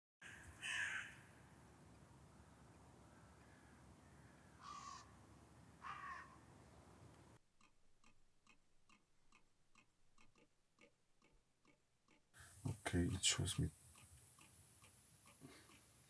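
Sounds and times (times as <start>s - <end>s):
harsh bird calls: 0.2s - 1.4s, 3.0s - 7.0s
faint steady ticking: 7.0s - 16.0s.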